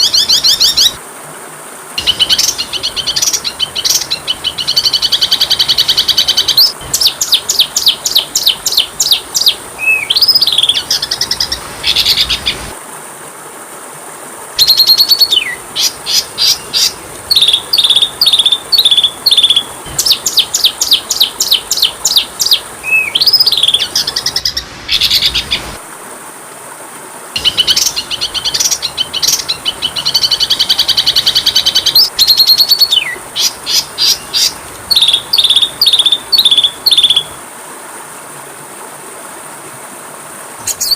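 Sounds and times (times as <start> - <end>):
steady high-pitched hiss: 0.0 - 40.9
bird singing chirps and whistles: 2.0 - 12.6, 14.6 - 15.6, 16.4 - 25.6, 27.4 - 37.3.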